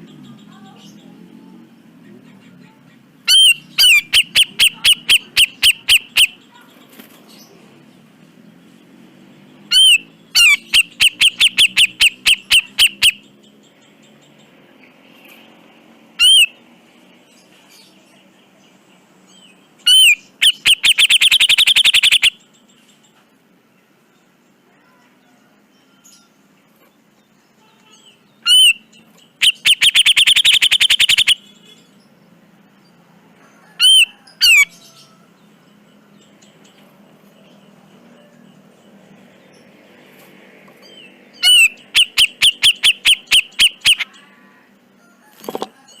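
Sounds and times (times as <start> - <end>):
bird calling: 2.7 - 6.9, 9.7 - 13.3, 16.2 - 16.6, 19.8 - 22.4, 27.9 - 31.7, 33.6 - 35.0, 41.3 - 44.6.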